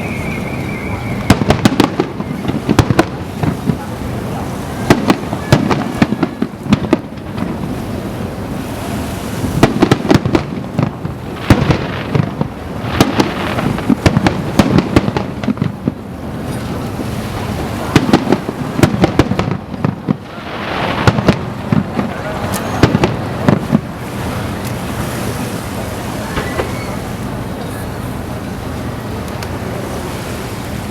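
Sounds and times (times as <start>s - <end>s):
fireworks bangs and booms: 0.6s - 27.0s.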